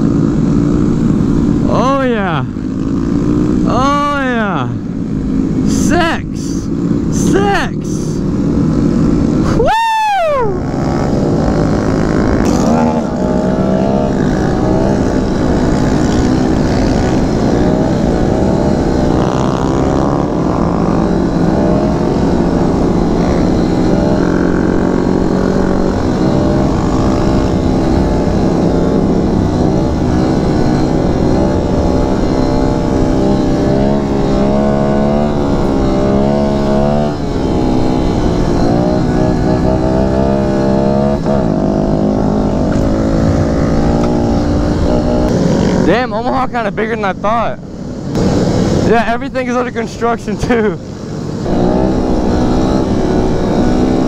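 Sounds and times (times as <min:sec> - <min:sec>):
motorcycle engine revving: 0:00.0 - 0:54.0
wind rumble on microphone: 0:08.2 - 0:49.4.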